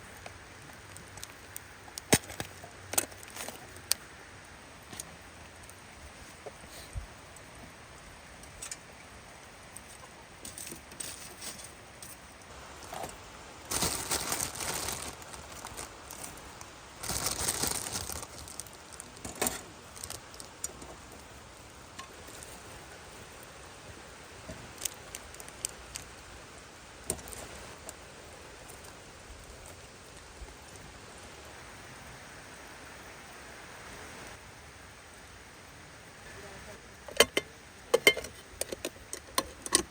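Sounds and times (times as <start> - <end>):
rain patter: 0.0 - 39.9
handling noise: 9.8 - 22.8.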